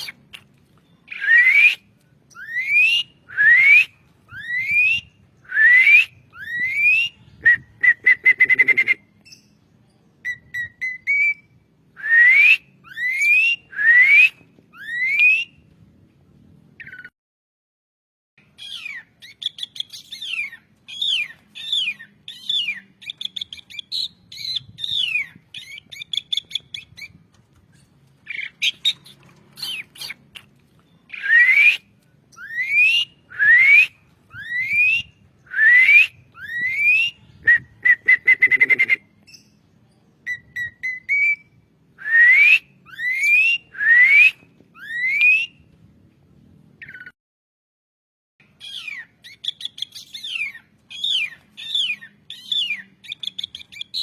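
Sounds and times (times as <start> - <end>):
starling singing: 18.4 - 27.2, 27.8 - 41.6, 48.4 - 54.0.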